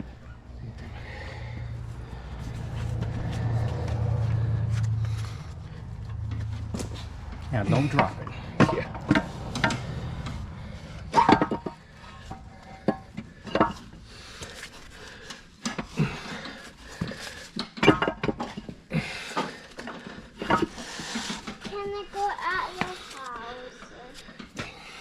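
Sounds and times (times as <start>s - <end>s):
metal parts clanking: 11.0s - 14.0s.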